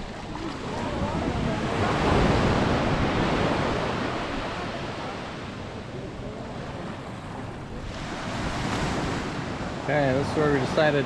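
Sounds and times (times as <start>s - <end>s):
wind buffeting microphone: 0.0s - 4.7s
ocean surf on sandy beach: 0.0s - 11.0s.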